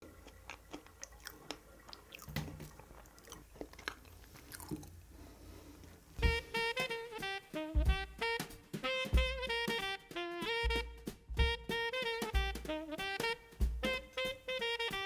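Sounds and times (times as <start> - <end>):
mouth chewing cake: 0.0 - 5.0
music: 6.2 - 15.0.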